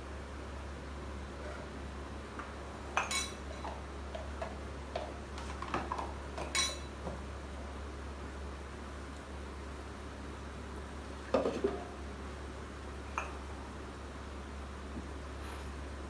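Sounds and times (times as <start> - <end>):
kitchen utensils clinking: 6.4 - 6.9.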